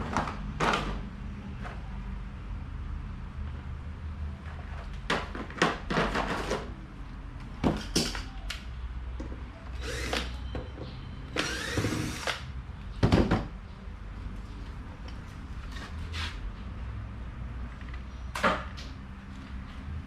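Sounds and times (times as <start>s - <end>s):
power tool whirr rising in pitch: 9.8s - 10.3s, 11.4s - 12.4s.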